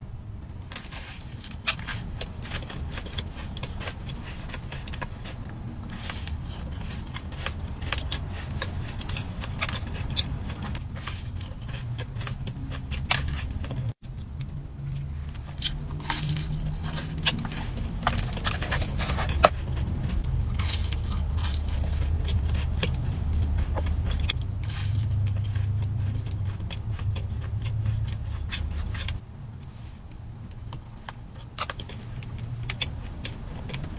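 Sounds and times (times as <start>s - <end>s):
low rumble: 0.0s - 31.1s
cookies being chewed: 0.4s - 33.9s.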